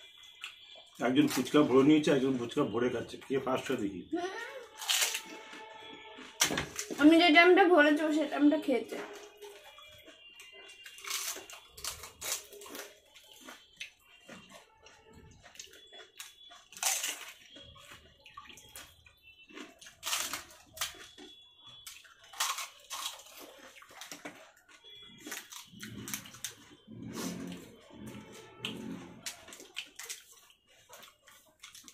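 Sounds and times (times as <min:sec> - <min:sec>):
crisp shells crunching: 0:04.7 - 0:07.0, 0:10.8 - 0:13.6, 0:16.0 - 0:17.6, 0:19.5 - 0:24.6
wet slurping: 0:25.8 - 0:29.8.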